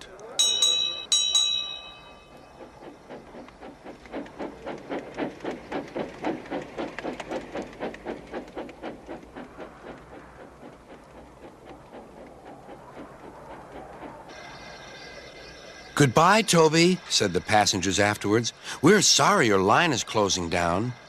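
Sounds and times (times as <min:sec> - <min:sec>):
bell ringing: 0:00.4 - 0:02.4
steam engine chuffing: 0:02.2 - 0:21.0.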